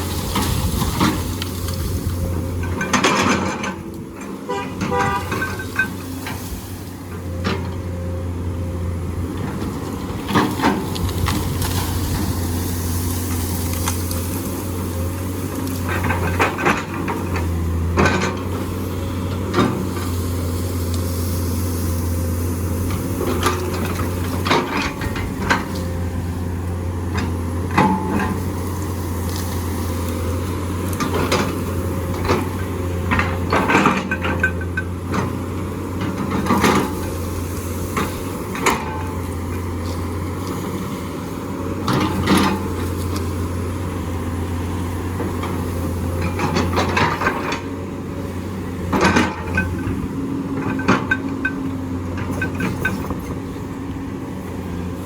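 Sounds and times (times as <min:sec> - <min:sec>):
excavator diesel engine running: 0:00.0 - 0:55.0
metal clanks and knocks: 0:02.6 - 0:06.4, 0:31.0 - 0:35.3, 0:48.9 - 0:50.0, 0:50.6 - 0:53.4.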